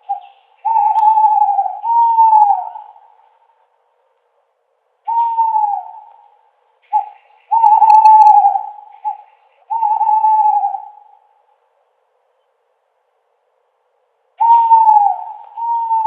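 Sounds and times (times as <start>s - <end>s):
owl hooting: 0.0s - 3.5s, 5.0s - 11.5s, 14.4s - 16.0s.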